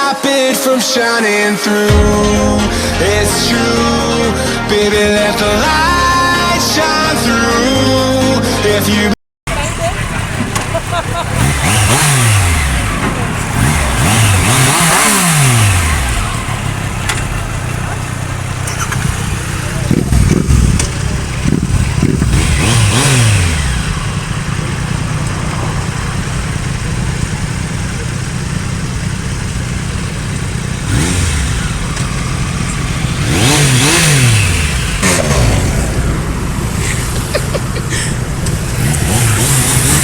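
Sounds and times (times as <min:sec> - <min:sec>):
motorcycles passing: 0:01.8 - 0:40.0
idling traffic rumble: 0:01.9 - 0:40.0.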